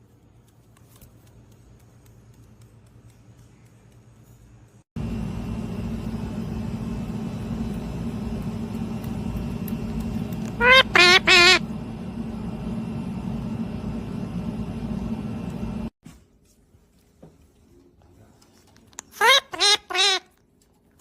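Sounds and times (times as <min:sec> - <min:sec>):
machine-like hum: 0:03.5 - 0:16.0
parrot harsh calls: 0:10.5 - 0:11.6, 0:19.1 - 0:20.3.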